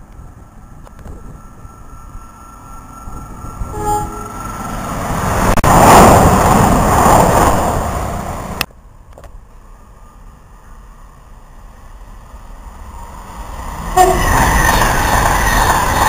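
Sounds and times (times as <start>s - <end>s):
train passing at speed: 0.0s - 16.0s
train horn toot: 3.7s - 4.5s, 13.9s - 14.4s.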